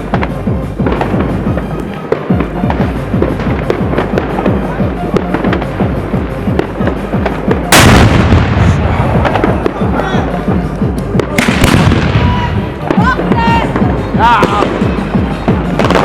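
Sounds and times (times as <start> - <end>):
background music: 0.0 - 16.0
fireworks crackling and banging: 0.0 - 16.0
loud heavy bang: 2.3 - 10.0, 11.2 - 15.1.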